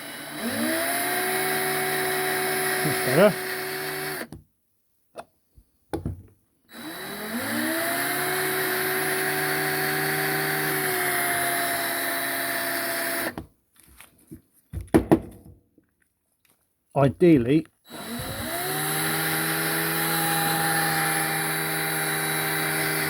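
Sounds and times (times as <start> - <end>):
electric drill whining into metal: 0.0 - 4.3, 6.7 - 13.4, 17.9 - 23.0.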